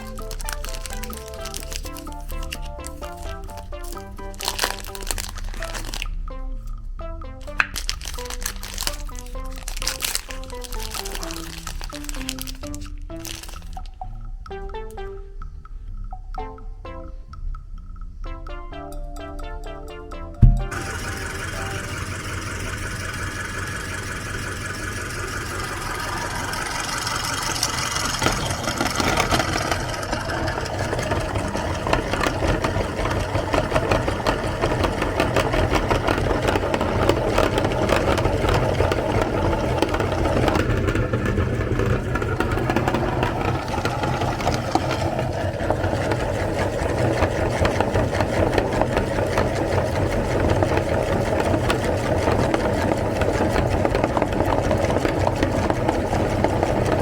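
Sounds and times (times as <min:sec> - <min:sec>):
electric grinder motor humming: 0:00.0 - 0:06.0, 0:20.7 - 0:57.0
crackle of grinding chocolate: 0:00.0 - 0:06.2, 0:07.4 - 0:13.9, 0:20.7 - 0:57.0.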